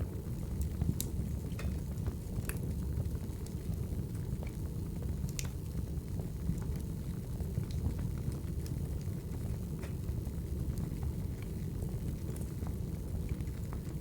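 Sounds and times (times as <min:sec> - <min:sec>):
low rumble of flames: 0:00.0 - 0:14.0
fire pops and snaps: 0:00.4 - 0:02.6.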